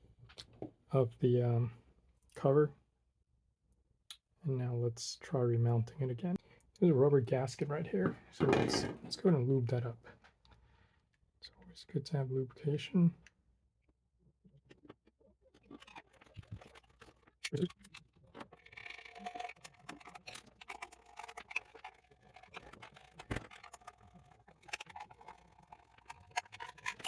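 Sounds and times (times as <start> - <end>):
plastic parts clicking and scraping: 8.0 - 9.2, 14.6 - 27.0.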